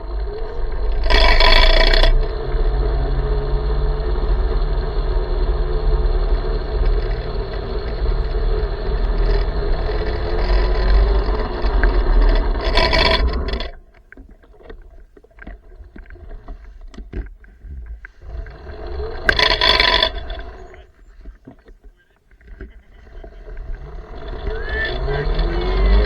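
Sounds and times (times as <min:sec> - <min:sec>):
tyre and motor noise: 0:00.0 - 0:26.0
scattered clicks: 0:04.6 - 0:14.0, 0:18.0 - 0:26.0.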